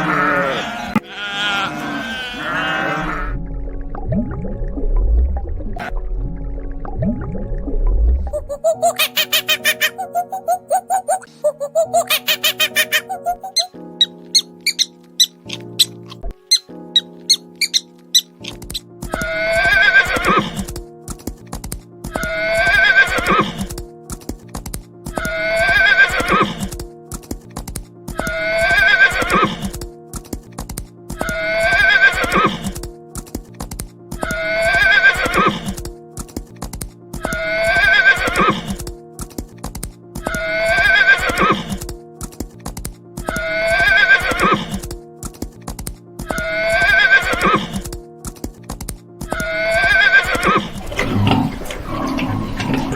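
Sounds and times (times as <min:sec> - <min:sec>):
horse neighing: 0:00.0 - 0:03.3, 0:19.2 - 0:20.6, 0:22.2 - 0:23.6, 0:25.2 - 0:26.6, 0:28.3 - 0:29.7, 0:31.2 - 0:32.7, 0:34.2 - 0:35.7, 0:37.3 - 0:38.8, 0:40.3 - 0:41.8, 0:43.3 - 0:44.8, 0:46.3 - 0:47.8, 0:49.4 - 0:52.9
background music: 0:00.0 - 0:52.9
hooves clip-clopping: 0:18.4 - 0:50.2.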